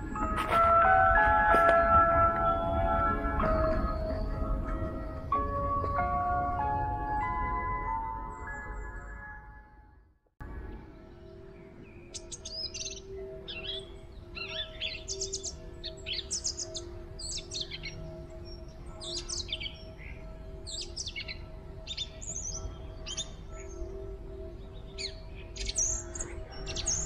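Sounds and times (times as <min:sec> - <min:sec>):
steady low drone: 0:00.0 - 0:12.4
songbirds chirping: 0:00.0 - 0:27.0.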